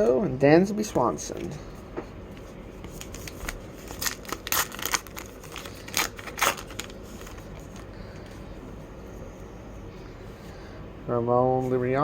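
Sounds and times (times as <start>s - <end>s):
cards being handled: 2.3s - 8.4s
foil wrapper tearing and crinkling: 3.0s - 8.0s.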